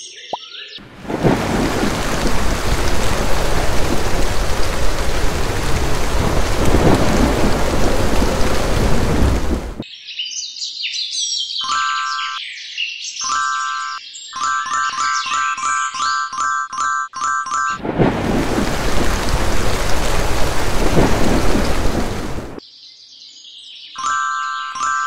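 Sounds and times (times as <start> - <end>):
heavy rain: 0.8 - 9.8, 17.8 - 22.6
thunder rumble: 0.8 - 9.8, 17.8 - 22.6.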